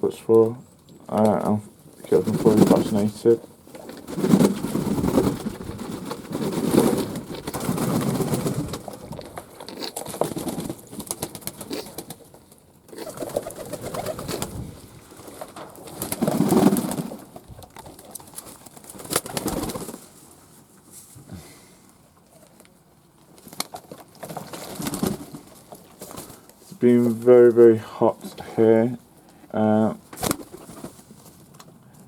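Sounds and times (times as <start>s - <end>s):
doves cooing: 3.7s - 19.8s.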